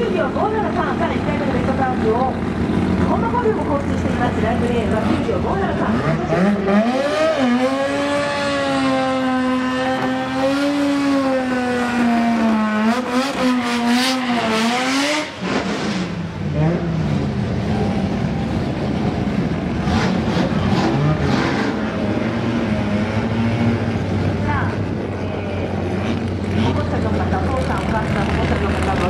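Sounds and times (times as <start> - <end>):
car engine revving high: 4.9 - 24.3.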